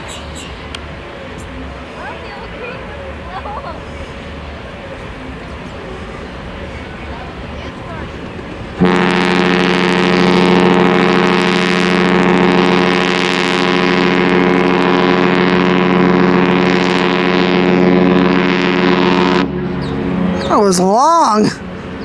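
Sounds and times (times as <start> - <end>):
ship's horn blast: 8.8 - 20.3.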